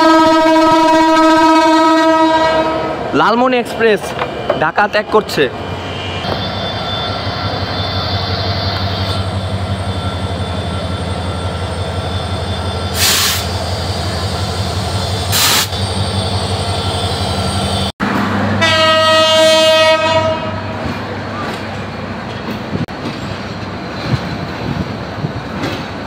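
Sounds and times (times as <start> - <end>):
train horn: 0.0 - 3.0, 18.5 - 20.8
diesel locomotive engine hum: 0.0 - 26.0
passenger coaches rolling past: 0.0 - 26.0
short bursts of hiss: 15.3 - 15.8.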